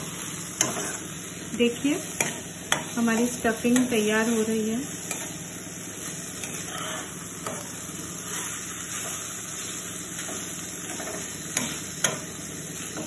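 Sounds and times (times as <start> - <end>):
filling sizzling in a pan: 0.0 - 13.0
metal spoon scraping pan: 0.6 - 1.1, 6.4 - 9.2.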